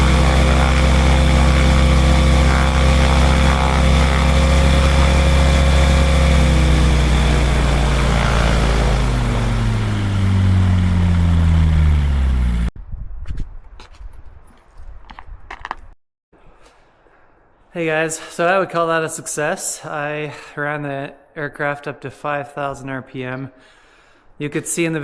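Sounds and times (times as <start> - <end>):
aircraft engine and propeller: 0.0 - 12.7.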